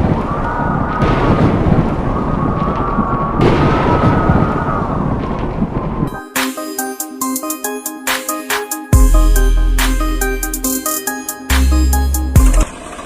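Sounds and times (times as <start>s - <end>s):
deep rumbling noise: 0.0s - 6.1s
upbeat music: 6.1s - 12.7s.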